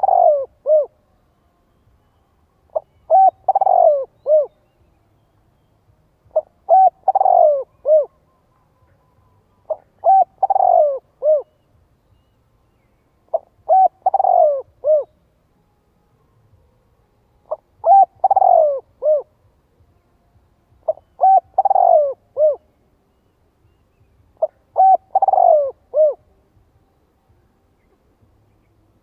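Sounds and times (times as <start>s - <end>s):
dove cooing: 0.0s - 1.0s, 2.7s - 4.6s, 6.3s - 8.2s, 9.6s - 11.7s, 13.3s - 15.2s, 17.5s - 19.4s, 20.8s - 22.7s, 24.4s - 26.3s.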